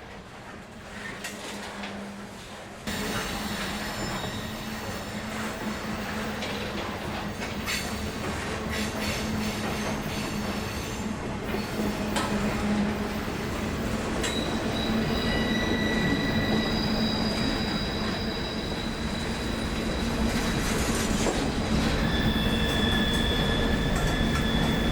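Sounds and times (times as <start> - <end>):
high wheel squeal: 2.9 - 6.3, 14.2 - 24.9.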